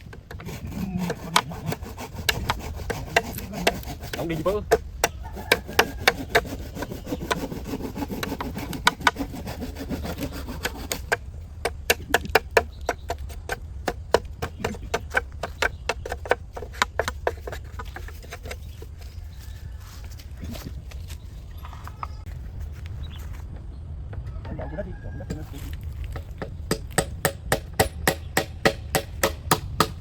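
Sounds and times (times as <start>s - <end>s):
scraping and rubbing on bamboo: 0.0s - 23.7s, 24.4s - 27.3s
sharp knocks on bamboo: 10.7s - 18.4s, 26.1s - 30.0s.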